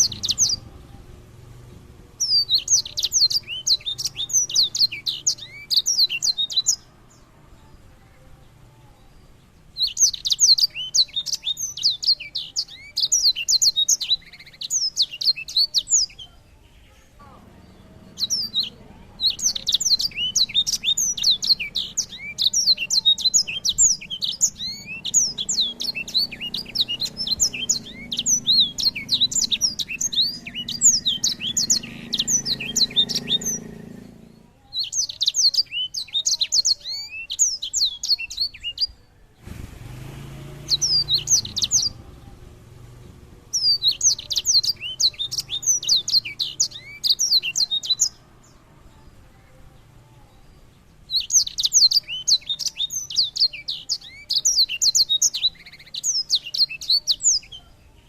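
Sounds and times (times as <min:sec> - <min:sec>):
faint low hum: 0:00.0 - 0:05.5
songbird singing rapid trills: 0:00.0 - 0:58.0.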